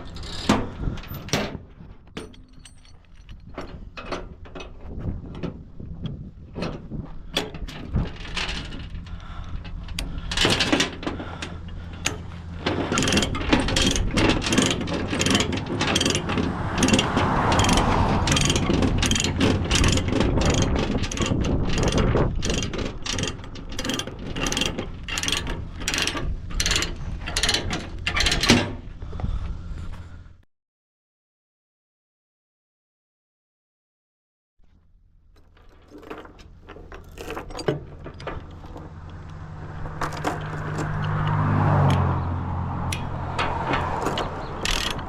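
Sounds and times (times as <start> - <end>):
low engine hum: 0.0 - 30.4, 34.9 - 45.0
metallic ratchet clicking: 13.0 - 28.4, 44.0 - 45.0.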